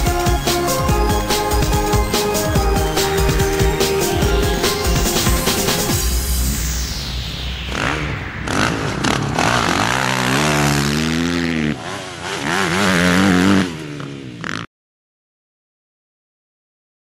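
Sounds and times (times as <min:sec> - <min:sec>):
motocross bike engine revving: 0:07.7 - 0:14.7.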